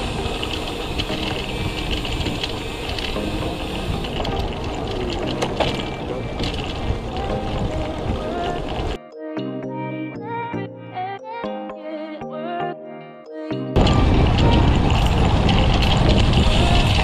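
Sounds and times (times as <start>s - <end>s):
wind and road noise: 0.0s - 9.0s, 13.8s - 17.0s
faint background music: 0.0s - 17.0s.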